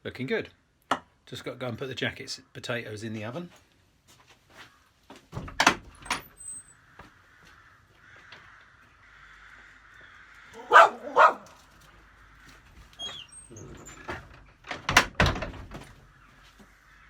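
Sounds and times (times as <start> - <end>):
dog barking: 10.6 - 11.6.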